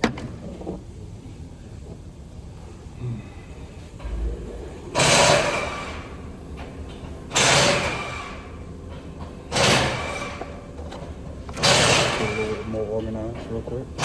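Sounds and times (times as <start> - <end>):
loud hissing rushing bursts: 4.0 - 6.5.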